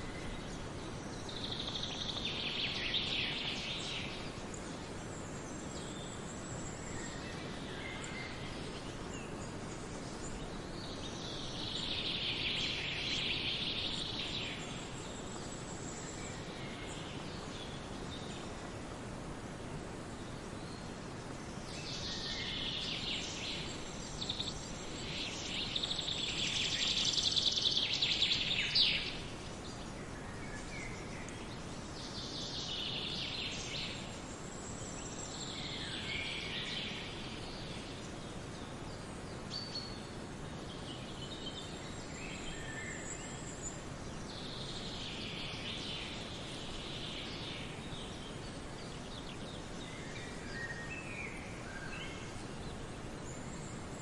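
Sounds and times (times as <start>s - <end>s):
background hiss: 0.0s - 54.0s
songbirds trilling: 0.0s - 54.0s.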